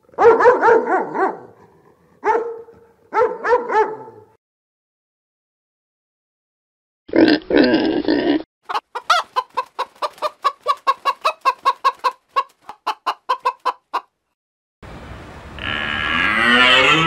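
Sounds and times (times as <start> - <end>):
chicken clucking: 8.7 - 14.2.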